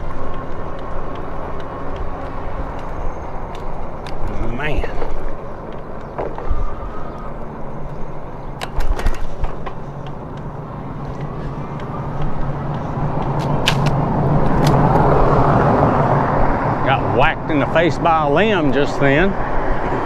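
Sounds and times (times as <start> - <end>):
sharp clicks and rattles: 0.0 - 15.7
e-bike riding rush and hum: 0.0 - 20.0.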